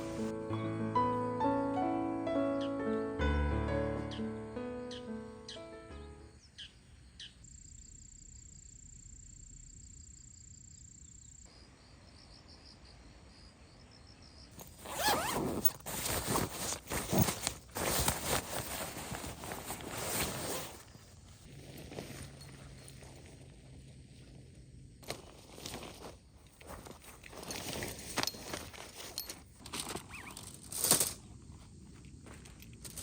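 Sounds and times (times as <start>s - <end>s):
faint high insect drone: 4.1s - 15.4s
tent zipper rasping: 14.6s - 23.4s, 29.9s - 30.6s.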